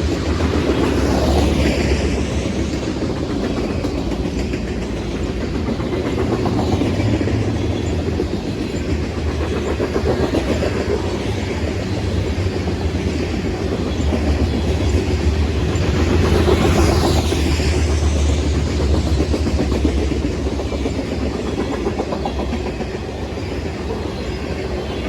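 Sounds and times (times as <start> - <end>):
freight train cars rumbling: 0.0 - 25.0
wheels clacking on rails: 0.0 - 25.0.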